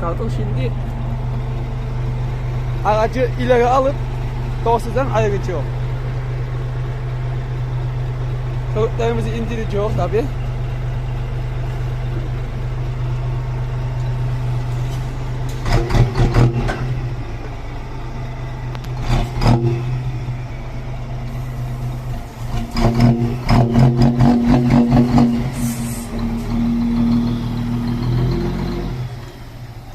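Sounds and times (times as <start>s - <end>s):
truck diesel engine: 0.0s - 29.9s
air hiss: 25.6s - 26.2s.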